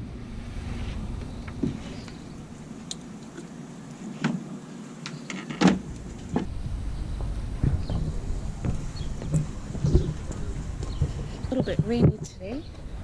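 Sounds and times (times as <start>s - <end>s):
low rumble: 0.0s - 2.9s, 5.8s - 12.0s
heavy thump: 5.6s - 12.2s.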